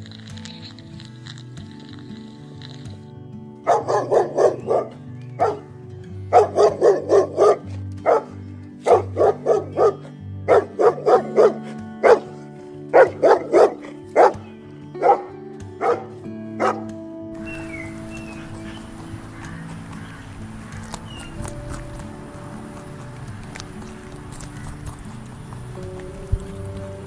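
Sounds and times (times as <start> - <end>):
background music with held notes: 0.0 - 27.0
dog barking: 3.7 - 5.7, 6.3 - 20.9.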